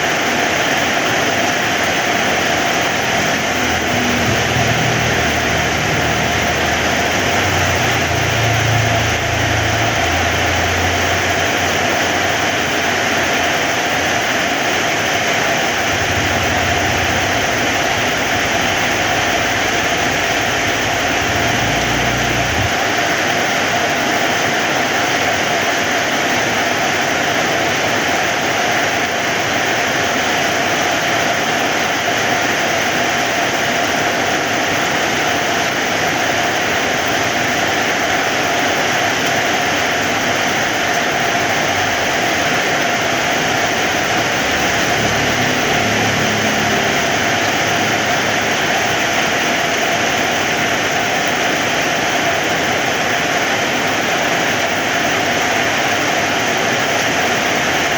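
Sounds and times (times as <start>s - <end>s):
heavy rain: 0.0s - 57.9s
low uneven rumble: 15.8s - 22.9s.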